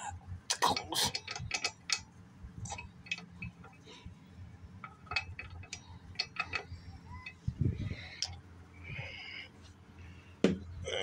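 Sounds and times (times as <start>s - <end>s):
metal sockets clinking: 0.6s - 3.9s, 4.8s - 7.5s.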